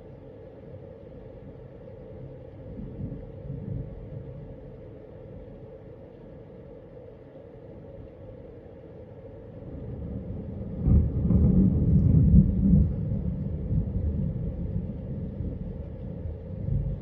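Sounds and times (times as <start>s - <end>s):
thunder rumbling: 2.6s - 5.7s, 9.5s - 17.0s.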